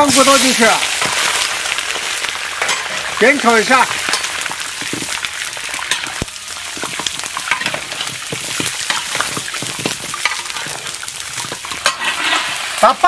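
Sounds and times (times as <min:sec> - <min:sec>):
bones sizzling in hot oil: 0:00.0 - 0:13.0
metal spatula scraping and knocking: 0:06.8 - 0:12.7.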